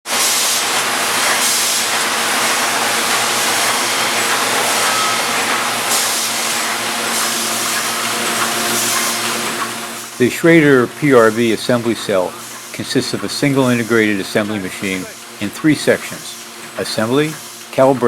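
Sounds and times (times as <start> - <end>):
machine hissing: 0.1 - 18.0.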